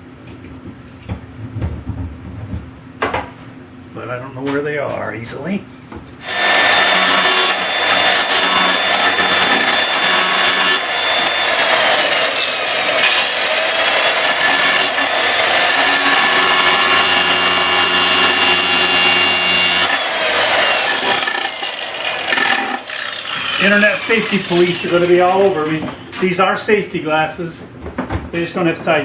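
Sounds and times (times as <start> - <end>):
power grinder grinding screws: 6.2 - 26.3.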